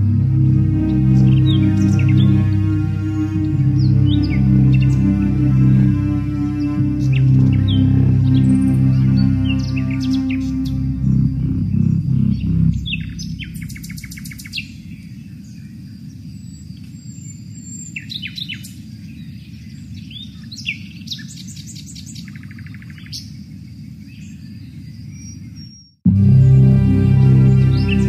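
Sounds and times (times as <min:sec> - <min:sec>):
low background rumble: 0:00.0 - 0:15.5
songbirds chirping and trilling: 0:00.0 - 0:28.0.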